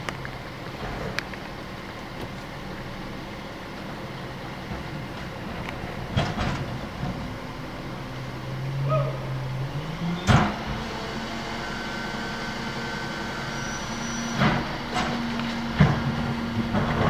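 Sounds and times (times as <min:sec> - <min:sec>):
garbage truck engine: 0:00.0 - 0:17.0.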